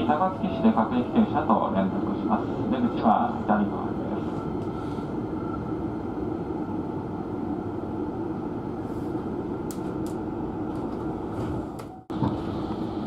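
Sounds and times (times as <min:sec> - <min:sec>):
train wheels rumbling on rail: 0:08.8 - 0:13.0.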